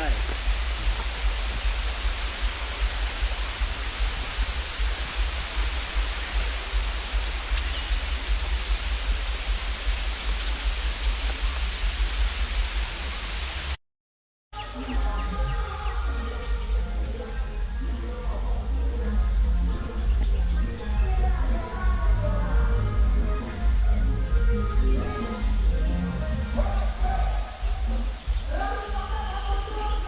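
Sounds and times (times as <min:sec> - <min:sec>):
waterfall roaring: 0:00.0 - 0:13.8.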